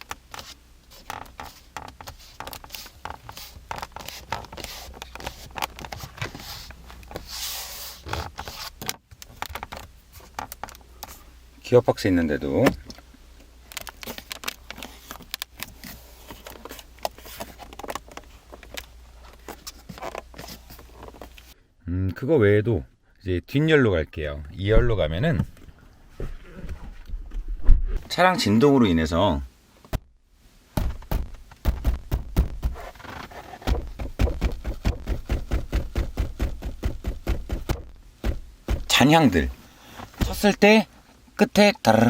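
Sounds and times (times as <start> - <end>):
car interior trim rattling: 30.8 - 40.8.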